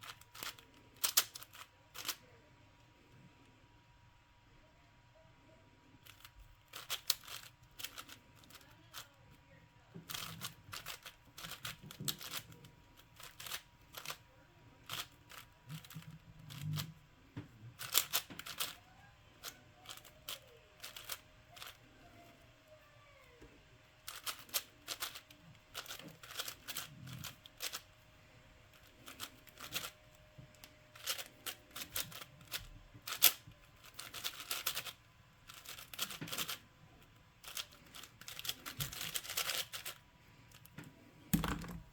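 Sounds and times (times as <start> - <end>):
plastic puzzle cube clicking: 0.0 - 2.2, 6.0 - 9.0, 10.1 - 12.6, 13.2 - 14.2, 14.8 - 16.9, 17.8 - 18.8, 19.4 - 21.8, 24.1 - 27.8, 28.7 - 36.6, 37.4 - 40.0.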